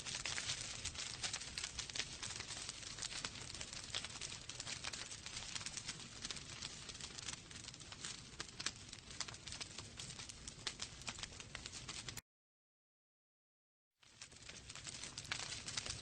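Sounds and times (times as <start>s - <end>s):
wood fire crackling: 0.0s - 12.2s, 14.0s - 16.0s.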